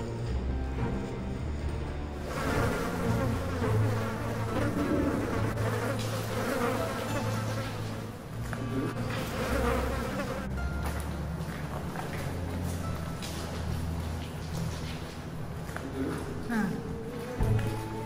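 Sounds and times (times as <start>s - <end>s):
steady buzzing drone: 0.0s - 11.0s.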